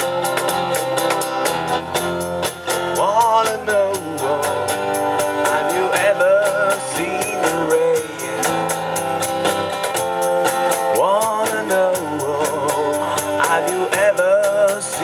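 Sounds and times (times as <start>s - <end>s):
cajon beat: 0.0s - 15.0s
strummed acoustic guitar: 0.0s - 15.0s
person singing: 2.9s - 8.7s, 10.8s - 15.0s.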